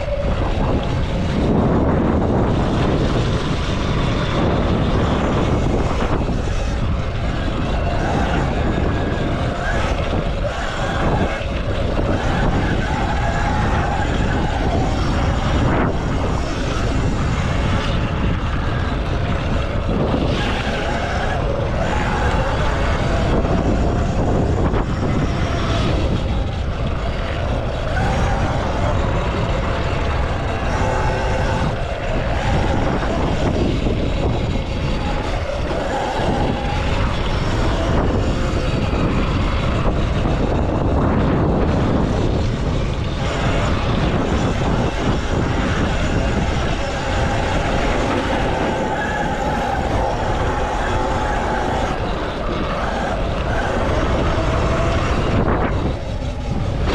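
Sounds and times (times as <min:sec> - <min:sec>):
electric motor whine: 0:00.0 - 0:56.9
wind rushing on microphone: 0:00.0 - 0:56.9.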